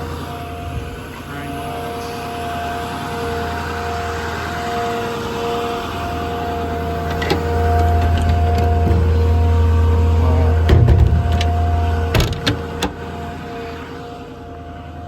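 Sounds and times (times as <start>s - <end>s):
diesel truck engine rumbling: 0.0s - 15.0s
engine whine: 0.0s - 15.0s.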